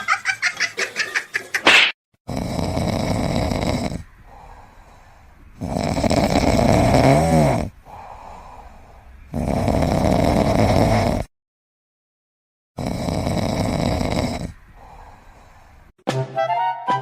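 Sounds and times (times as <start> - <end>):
pet snoring: 2.3 - 4.1, 5.6 - 8.6, 9.3 - 11.3, 12.8 - 15.0
quiet breaths: 2.6 - 7.0, 7.6 - 10.1, 13.1 - 16.0.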